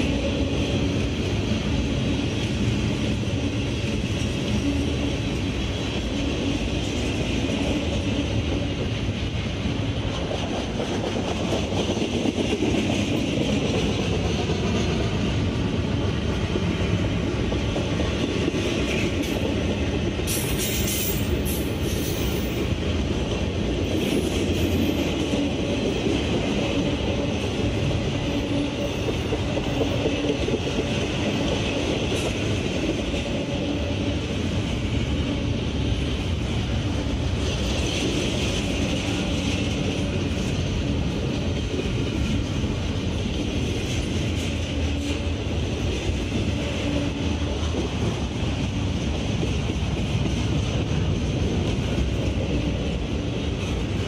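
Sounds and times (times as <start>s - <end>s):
freight train rolling past: 0.0s - 54.0s
wheels clacking on rails: 0.0s - 54.0s.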